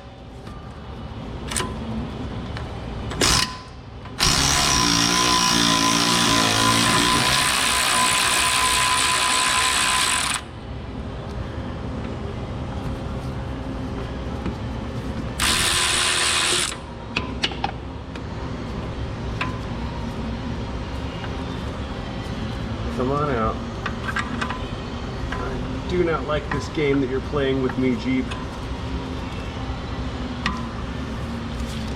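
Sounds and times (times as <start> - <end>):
power tool running on a bolt: 4.2 - 10.5, 15.4 - 16.8.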